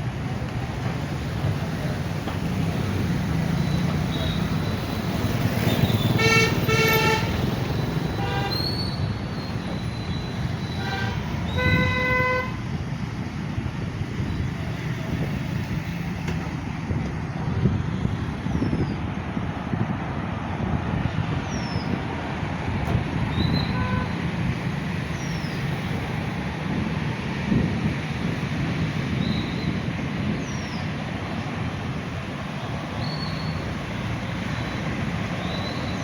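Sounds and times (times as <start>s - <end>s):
road traffic: 0.0s - 36.0s
vehicle horns honking: 5.7s - 7.5s, 8.1s - 9.0s, 10.6s - 12.6s, 23.6s - 24.2s.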